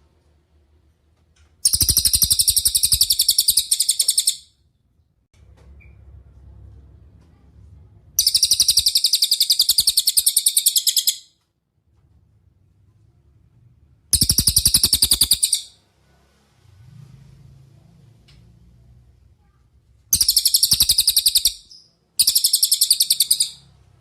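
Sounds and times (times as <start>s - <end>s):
bird high-pitched trills: 1.6s - 4.5s, 8.2s - 11.3s, 14.2s - 15.8s, 20.2s - 23.7s.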